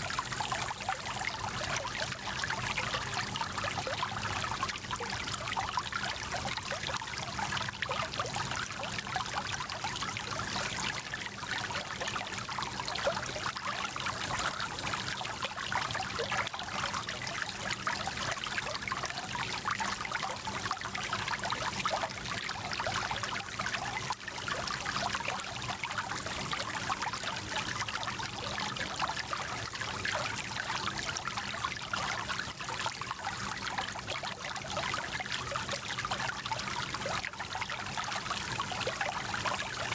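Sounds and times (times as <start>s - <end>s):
stream babbling over stones: 0.0s - 2.6s.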